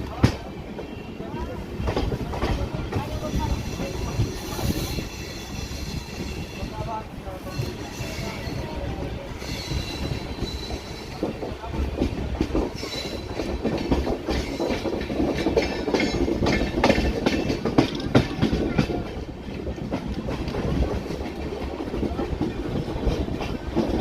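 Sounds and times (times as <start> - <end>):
low train rumble: 0.0 - 24.0
train wheels clattering over rails: 0.0 - 24.0.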